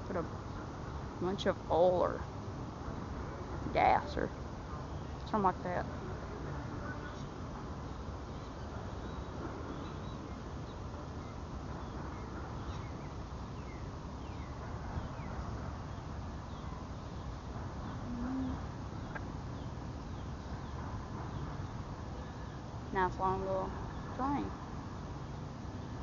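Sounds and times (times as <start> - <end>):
small birds chirping: 6.8 - 26.0
bird cooing: 18.0 - 18.7.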